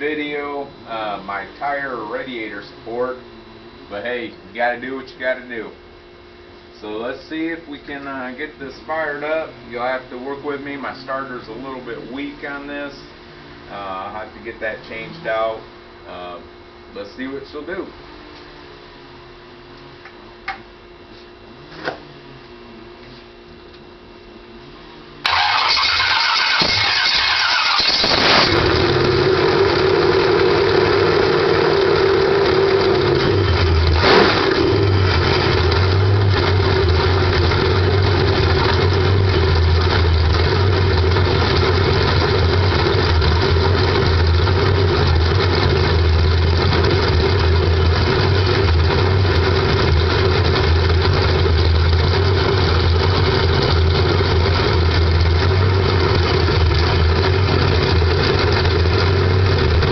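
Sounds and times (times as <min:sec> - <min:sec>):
engine running: 0:25.2 - 0:59.9
starter cranking engine: 0:25.2 - 0:59.9.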